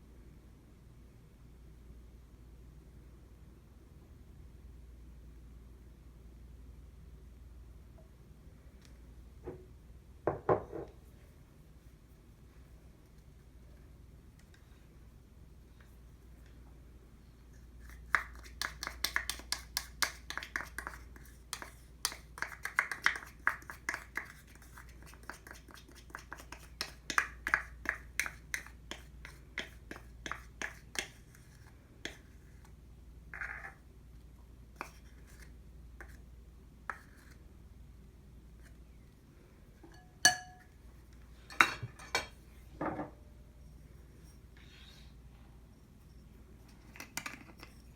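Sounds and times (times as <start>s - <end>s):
utensil clinking against bowl: 39.8s - 40.8s.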